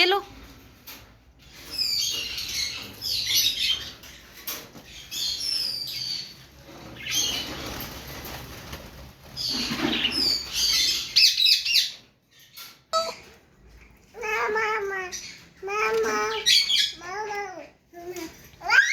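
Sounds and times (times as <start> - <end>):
birds flapping wings: 6.8 - 10.5
high downward-sliding chirps: 13.0 - 13.2.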